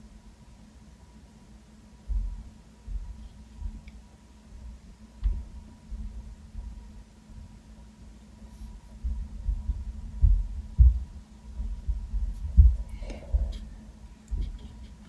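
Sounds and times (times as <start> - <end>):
low electrical hum: 0.0 - 15.0
muffled low thumps and knocks: 2.1 - 3.9, 5.2 - 6.8, 9.0 - 13.7.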